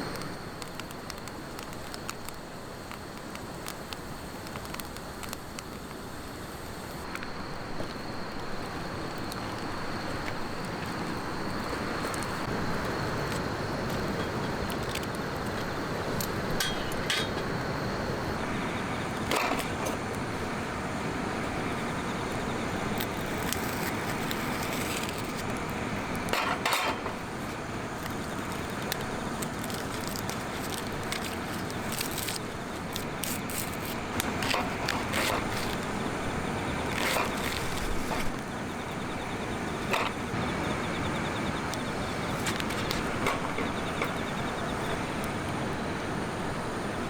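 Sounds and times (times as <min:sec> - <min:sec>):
wood fire burning: 0:00.0 - 0:47.0
sharp clicks and clinks: 0:14.1 - 0:17.6.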